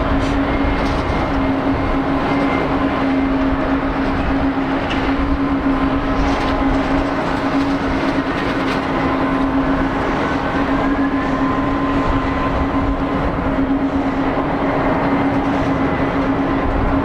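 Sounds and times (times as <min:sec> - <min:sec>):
jet engines at takeoff power: 0:00.0 - 0:17.0.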